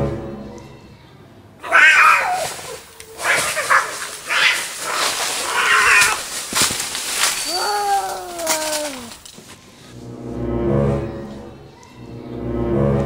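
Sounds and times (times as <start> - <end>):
child making cat-fight cries: 1.6 - 4.8, 5.4 - 6.2, 7.4 - 9.2.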